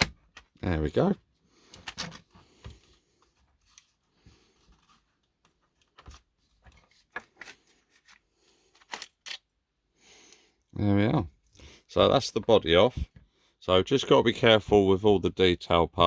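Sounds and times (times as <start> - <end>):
plastic clicks and rustles: 1.7 - 4.0, 4.6 - 9.5.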